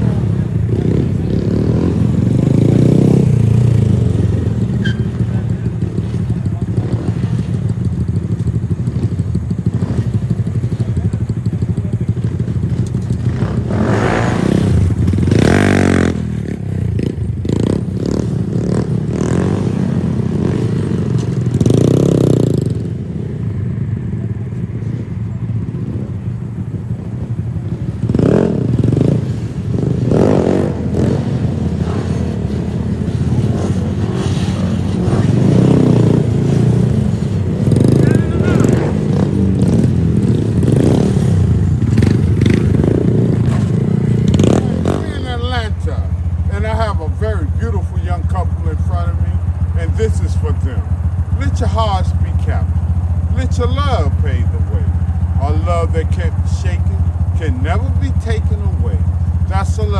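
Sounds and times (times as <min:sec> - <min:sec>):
motorbike engines revving: 0:00.0 - 0:59.9.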